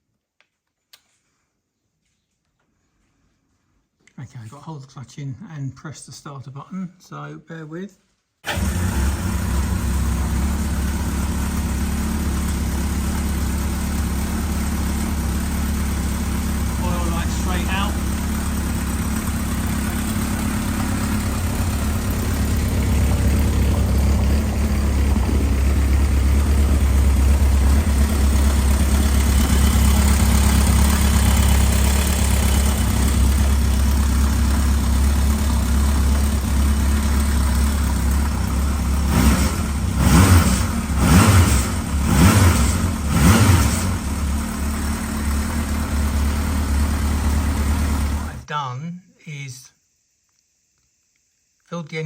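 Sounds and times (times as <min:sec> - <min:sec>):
motorcycle engine idling: 0:08.5 - 0:48.4.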